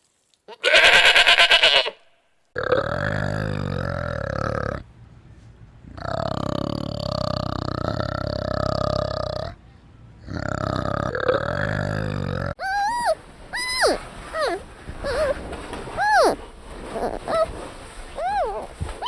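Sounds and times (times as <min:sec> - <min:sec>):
animal low buzzing grunts: 0:02.6 - 0:04.8, 0:05.9 - 0:09.6, 0:10.2 - 0:12.6.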